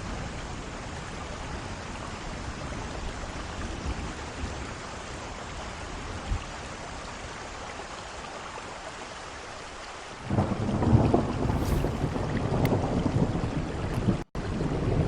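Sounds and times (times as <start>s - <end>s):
thunderclap: 10.3s - 14.2s
heavy rain hissing: 11.3s - 13.2s
short low thump: 11.4s - 12.7s.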